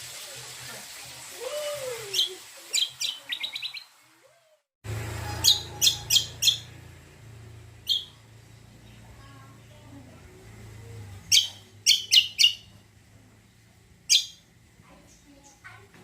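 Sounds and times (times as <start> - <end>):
songbird chirping: 5.1 - 9.3, 11.2 - 12.8.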